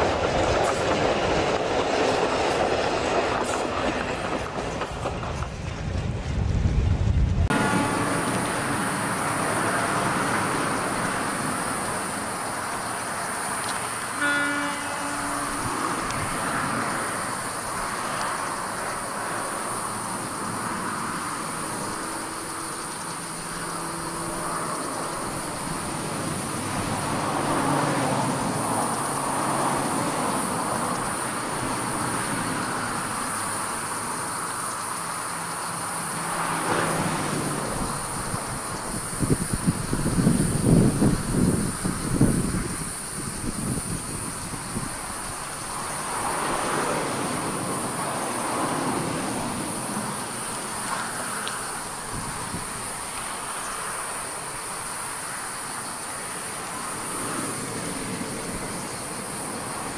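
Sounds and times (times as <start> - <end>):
distant diesel train engine and rails: 0.0 - 59.9
train horn blast: 7.5 - 11.2, 13.2 - 17.4.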